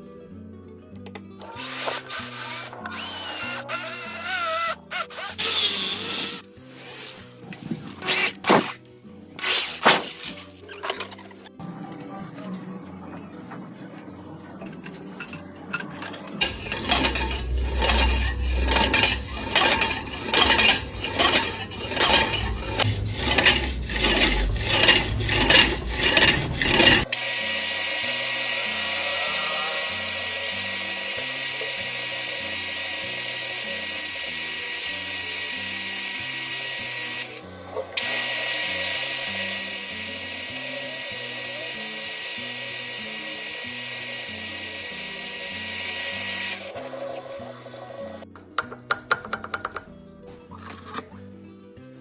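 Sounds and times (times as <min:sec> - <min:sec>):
background music: 0:00.0 - 0:52.0
metal machining cutting: 0:01.4 - 0:07.2, 0:16.0 - 0:37.4, 0:38.0 - 0:46.9.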